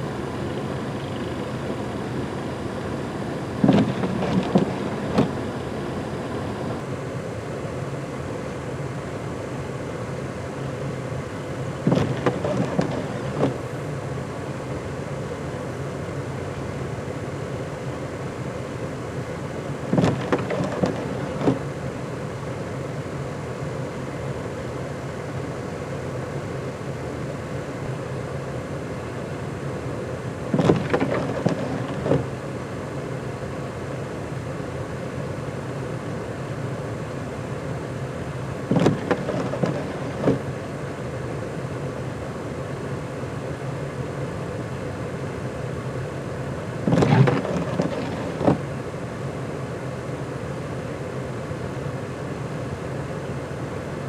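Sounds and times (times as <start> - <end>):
vehicle engine rumble and hum: 0.0 - 54.0
knocks and scrapes: 3.6 - 5.4, 11.9 - 13.6, 19.9 - 21.6, 30.6 - 32.3, 38.7 - 40.4, 46.9 - 48.6.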